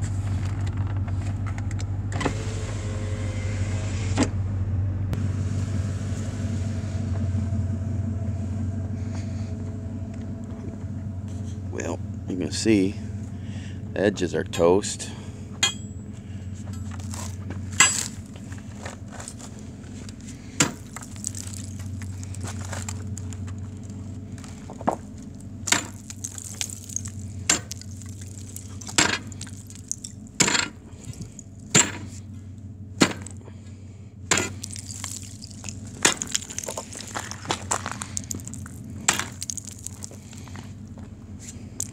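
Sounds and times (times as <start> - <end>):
low rumble: 3.0 - 41.9
ice crunching and cracking: 16.8 - 32.2, 33.0 - 33.4, 34.3 - 41.9.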